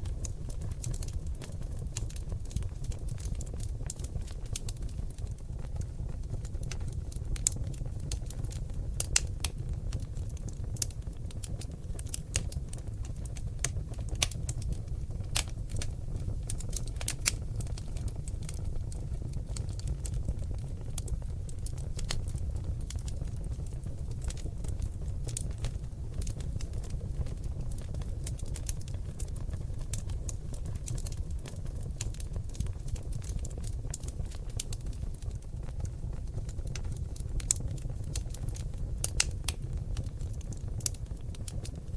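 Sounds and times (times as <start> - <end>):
logs crackling in fireplace: 0.0 - 41.9.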